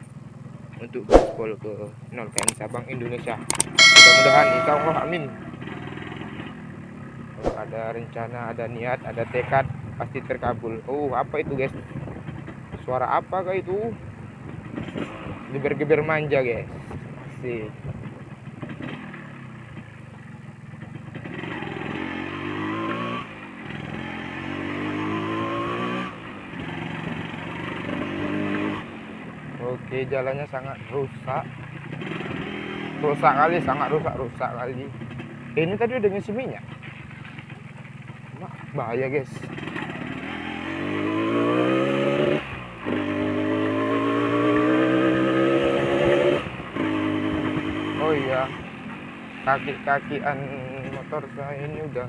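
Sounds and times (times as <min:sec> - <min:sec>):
motorcycle engine accelerating: 0:39.5 - 0:48.0.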